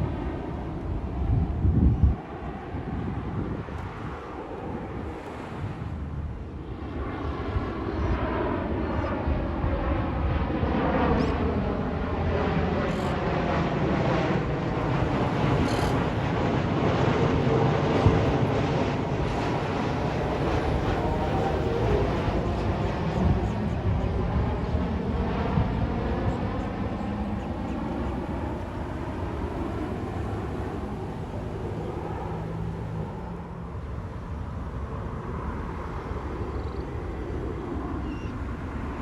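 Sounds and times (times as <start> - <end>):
wind noise on microphone: 0.0 - 13.2, 14.0 - 31.4
jet airliner flying past: 0.0 - 39.0.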